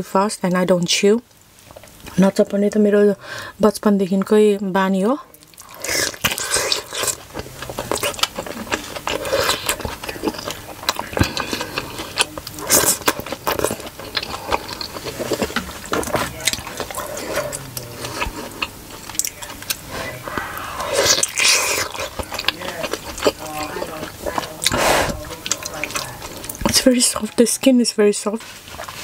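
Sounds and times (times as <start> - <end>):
chewing food: 1.3 - 2.8, 5.2 - 29.0
mouth clicks and smacks: 5.4 - 27.3.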